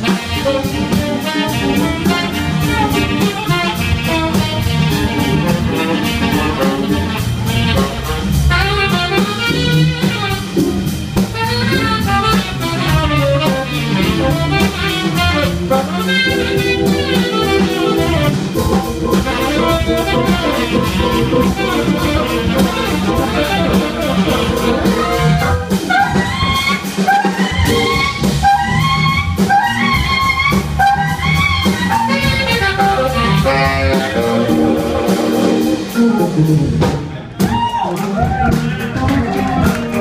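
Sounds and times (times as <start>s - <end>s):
jazz-funk band playing: 0.0s - 40.0s
steady drum beat: 0.0s - 40.0s
rising horn runs: 11.4s - 36.4s.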